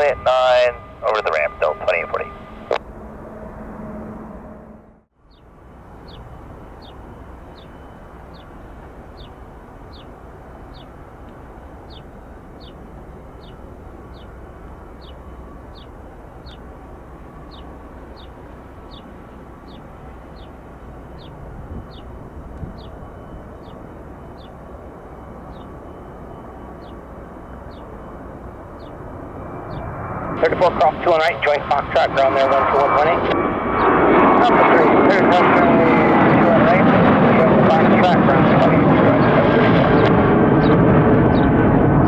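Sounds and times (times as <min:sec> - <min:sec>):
airport background rumble: 0:00.0 - 0:42.0
small bird chirping: 0:05.3 - 0:11.0, 0:11.8 - 0:14.4, 0:15.0 - 0:16.7, 0:17.4 - 0:24.6, 0:25.4 - 0:26.1, 0:26.7 - 0:28.0, 0:28.8 - 0:29.0.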